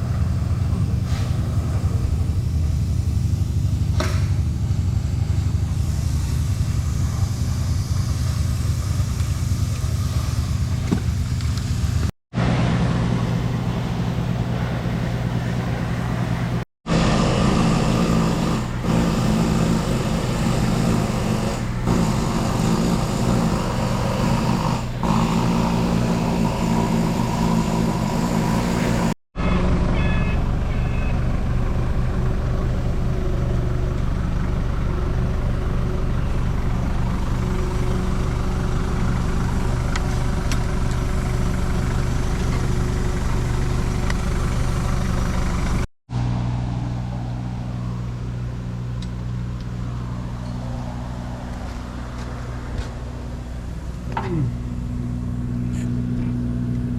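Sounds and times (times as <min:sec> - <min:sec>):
mini excavator engine running: 0:00.0 - 0:56.9.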